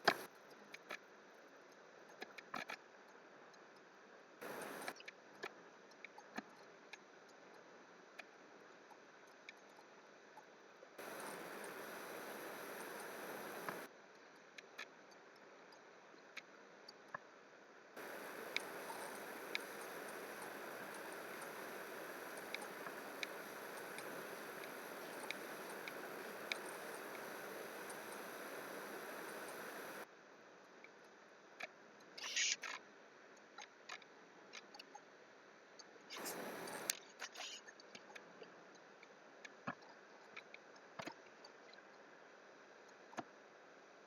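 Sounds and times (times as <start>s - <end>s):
computer mouse clicks: 0.0s - 0.3s, 18.0s - 30.0s, 36.1s - 37.6s
computer mouse and keyboard clicks: 0.0s - 0.9s
faint microphone hiss: 0.0s - 2.1s, 3.0s - 6.1s, 10.6s - 14.5s, 17.6s - 32.2s, 35.1s - 37.6s.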